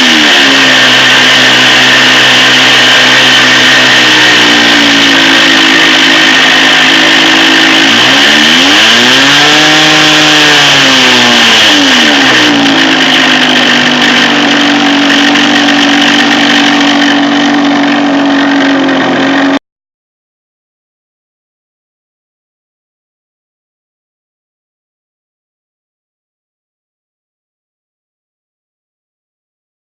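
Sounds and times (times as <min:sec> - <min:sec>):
model airplane engine running: 0:00.0 - 0:19.6.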